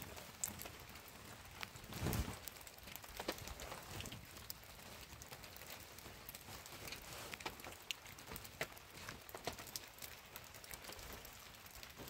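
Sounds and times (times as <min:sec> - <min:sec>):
rain on canvas tent: 0:00.0 - 0:12.0
blanket rustling: 0:01.2 - 0:02.6.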